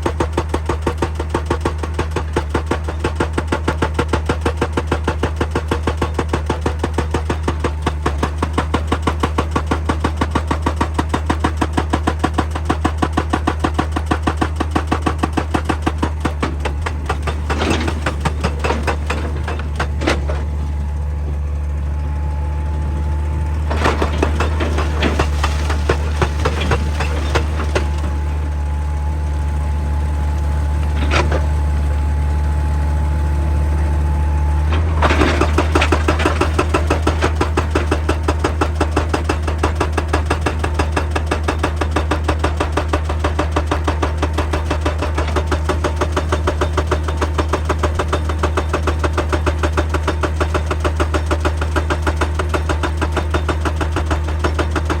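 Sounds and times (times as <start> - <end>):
hydraulic rock breaker hammering: 0.0 - 32.3, 34.6 - 55.0
diesel engine drone: 16.0 - 37.4.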